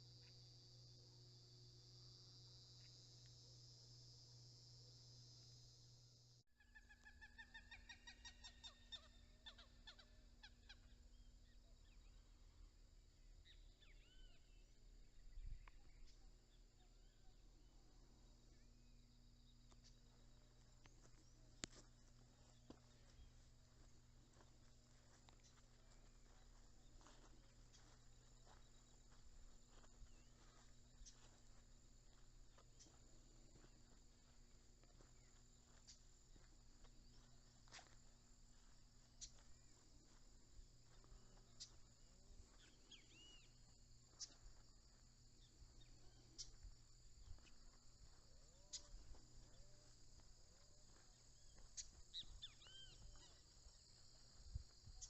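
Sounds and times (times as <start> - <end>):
insects trilling: 0.0 - 55.0
birds chirping: 6.6 - 12.5, 13.4 - 55.0
sharp single calls: 51.5 - 53.5.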